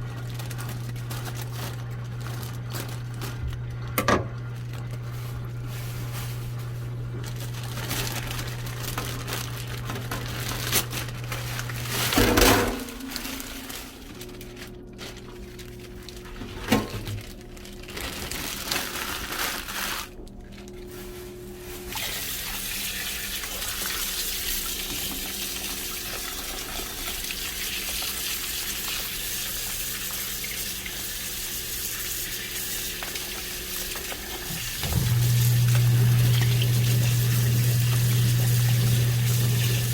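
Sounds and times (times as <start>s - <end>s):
low steady hum: 0.0s - 21.9s, 34.5s - 39.9s
tap running into sink: 3.9s - 4.4s, 33.0s - 39.9s.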